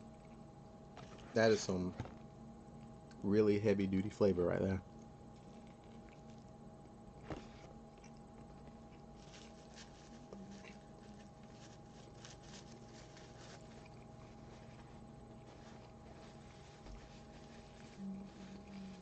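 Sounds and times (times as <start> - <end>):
faint steady hum: 0.0 - 19.0
chewing crispy sandwich: 4.8 - 19.0.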